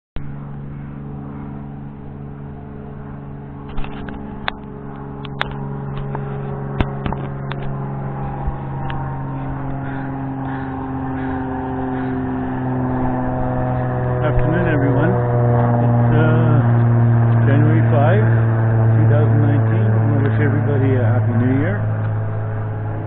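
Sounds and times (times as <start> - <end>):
vehicle engine humming: 0.2 - 23.0.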